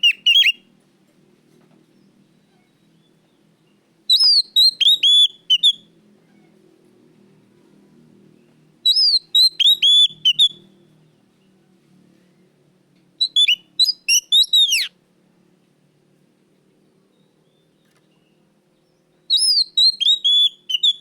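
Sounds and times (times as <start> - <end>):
bird singing whistled notes: 0.0 - 0.6, 4.1 - 5.9, 8.8 - 10.8, 13.2 - 14.9, 17.1 - 21.0.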